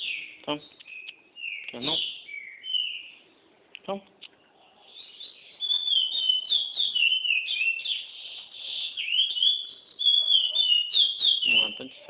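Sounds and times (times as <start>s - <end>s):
bird warbling and whistling: 5.0s - 12.0s.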